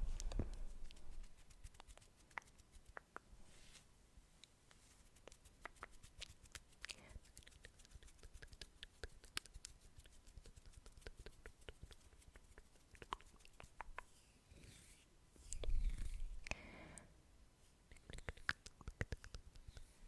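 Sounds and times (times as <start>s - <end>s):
mouth clicks and pops: 17.9s - 19.7s.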